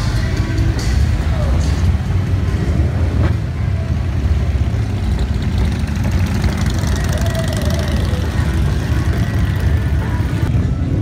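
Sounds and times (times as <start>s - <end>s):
motorcycle engine running: 3.5s - 10.5s.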